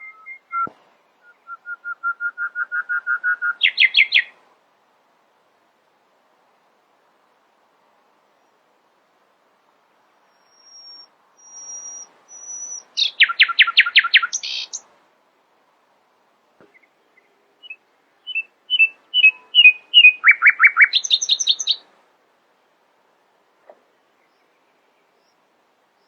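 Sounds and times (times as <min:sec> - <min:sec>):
nightingale singing: 0:00.0 - 0:04.4, 0:10.2 - 0:14.9, 0:16.6 - 0:21.9.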